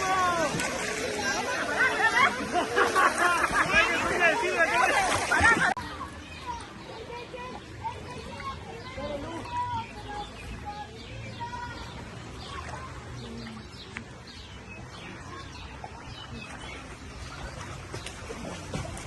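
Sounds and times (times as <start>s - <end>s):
small birds chirping: 5.8s - 19.0s.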